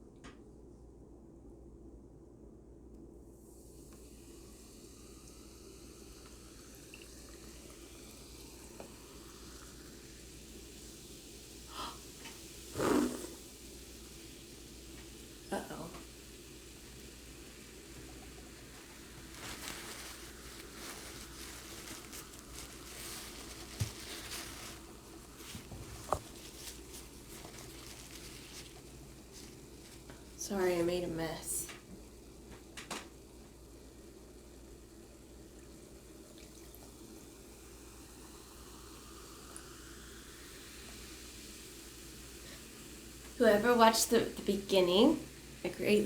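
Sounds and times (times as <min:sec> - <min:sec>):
liquid pouring into container: 0:03.7 - 0:30.4, 0:34.0 - 0:43.4
crackling handling noises: 0:18.0 - 0:30.4.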